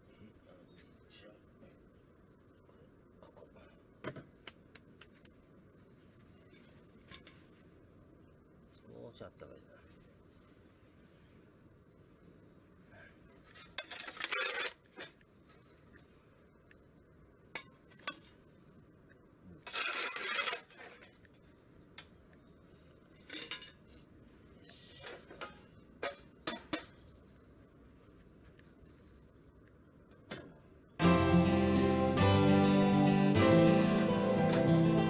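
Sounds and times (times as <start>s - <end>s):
metal cookware scraping: 13.5s - 15.2s, 19.6s - 21.2s, 23.2s - 24.0s, 24.8s - 27.0s, 33.6s - 35.0s.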